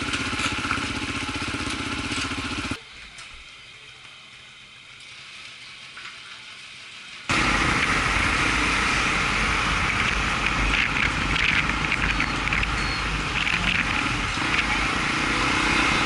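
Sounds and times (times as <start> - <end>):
motorbike engine running: 0.0 - 2.8, 7.3 - 16.0.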